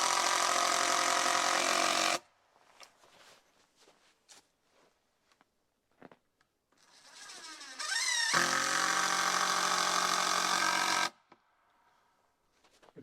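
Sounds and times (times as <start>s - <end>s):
power drill whining: 0.0s - 2.2s, 6.8s - 11.2s.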